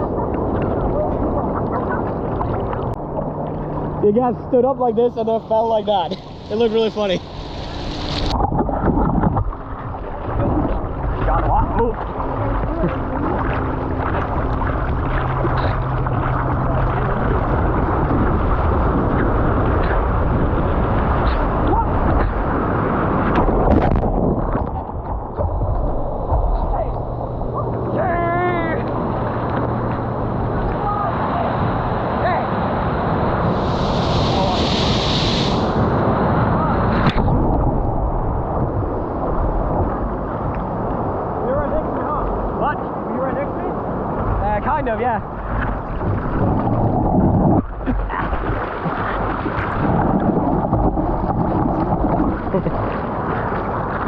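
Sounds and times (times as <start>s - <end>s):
wind on microphone: 0.0s - 5.3s, 6.0s - 54.0s
ocean surf rushing: 0.0s - 25.4s, 26.1s - 54.0s
high hiss: 33.4s - 36.0s.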